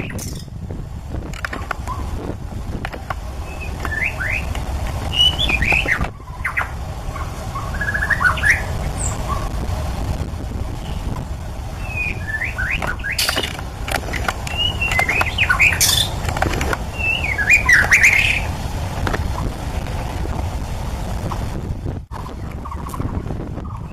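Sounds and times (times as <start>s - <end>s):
steady low rumble: 0.0s - 23.9s
bird singing whistled phrases: 3.4s - 4.5s, 5.1s - 6.7s, 7.6s - 9.5s, 11.8s - 13.3s, 14.5s - 16.1s, 17.0s - 18.5s.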